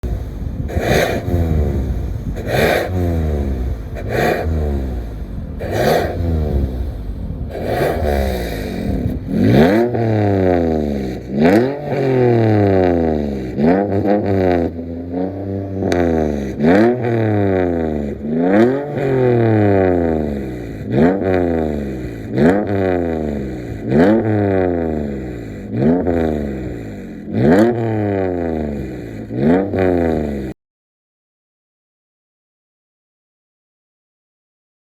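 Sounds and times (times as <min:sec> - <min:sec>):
car engine revving: 0:00.0 - 0:30.6.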